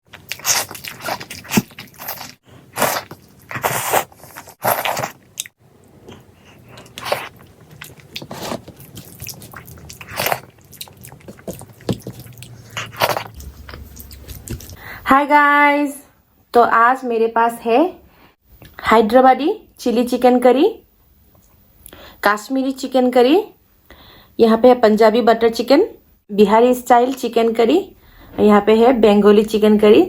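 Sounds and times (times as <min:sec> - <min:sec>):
close-miked chewing and biting: 0:00.1 - 0:14.8.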